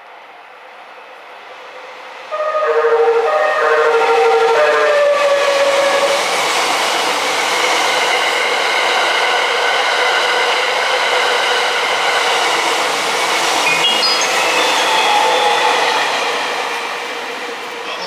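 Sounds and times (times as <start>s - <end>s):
train wheels rolling on rails: 0.0s - 18.0s
train melody horn: 2.3s - 7.1s, 13.3s - 18.0s
faint high-pitched tones: 13.6s - 17.2s.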